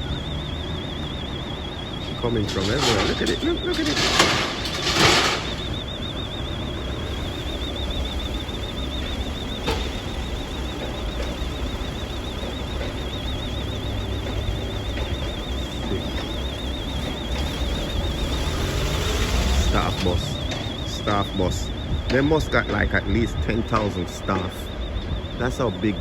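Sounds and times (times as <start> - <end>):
electronic alarm warbling: 0.0 - 26.0
engine running: 0.0 - 26.0.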